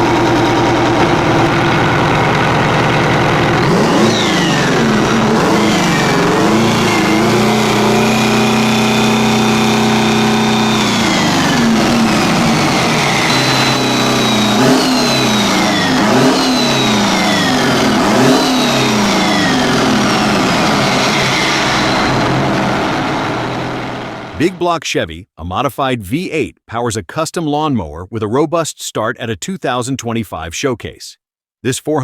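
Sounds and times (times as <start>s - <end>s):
diesel engine revving: 0.0s - 24.6s.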